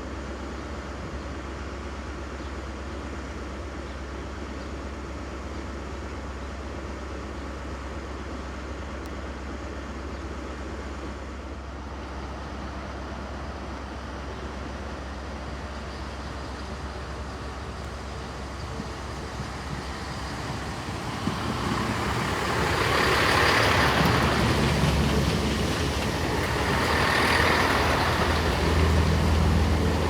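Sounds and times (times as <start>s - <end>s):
train approaching: 11.6s - 30.0s.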